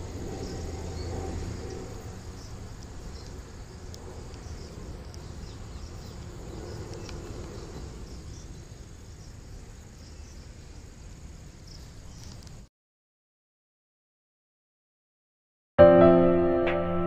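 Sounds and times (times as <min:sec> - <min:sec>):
insects chirring: 0:00.0 - 0:12.7.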